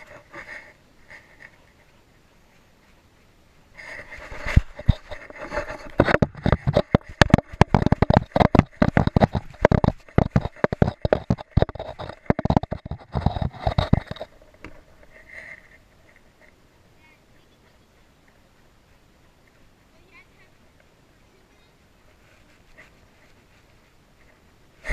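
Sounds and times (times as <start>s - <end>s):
knocks and scuffs on camera: 4.3s - 14.8s.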